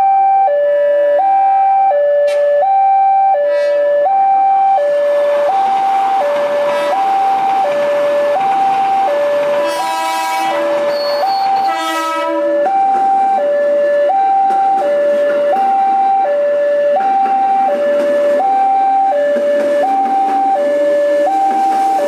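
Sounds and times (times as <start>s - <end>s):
level crossing two-tone alarm: 0.0s - 22.0s
train horn blasts: 3.4s - 4.0s, 6.4s - 7.3s, 9.4s - 12.6s
train rumbling past: 4.7s - 22.0s.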